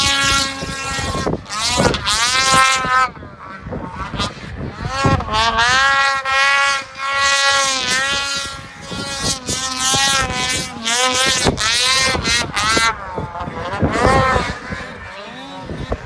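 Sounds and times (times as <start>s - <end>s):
snowmobile engine revving: 0.0s - 16.0s.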